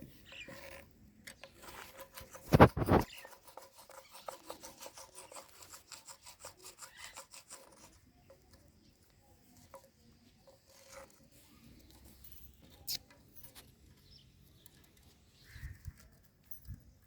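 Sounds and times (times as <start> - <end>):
parrot scratching and nibbling: 0.1 - 13.8.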